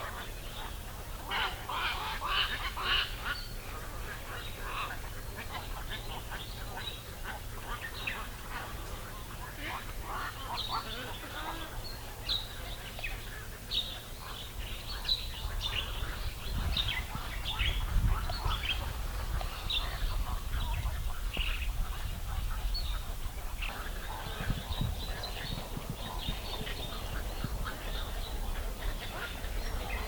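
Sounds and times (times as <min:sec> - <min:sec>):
birds chirping: 0:00.2 - 0:30.0.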